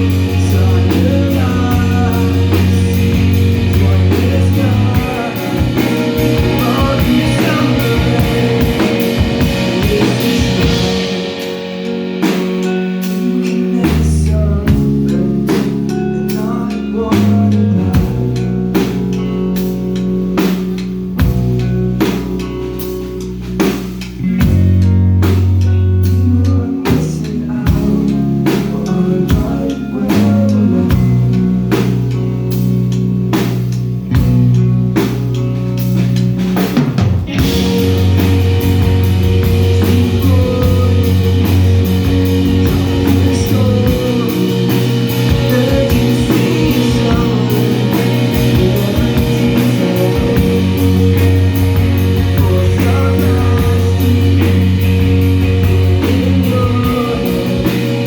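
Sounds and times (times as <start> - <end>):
live rock band: 0.0 - 58.0.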